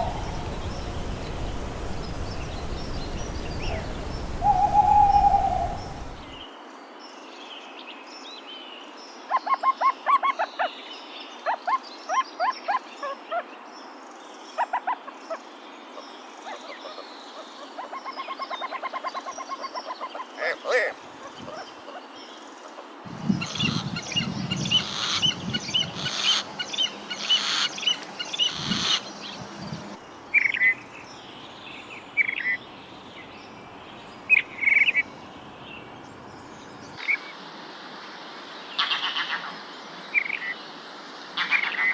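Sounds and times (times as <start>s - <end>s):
birds calling: 0.0s - 6.4s, 23.5s - 37.0s
faint background hiss: 0.0s - 9.3s, 17.0s - 41.9s.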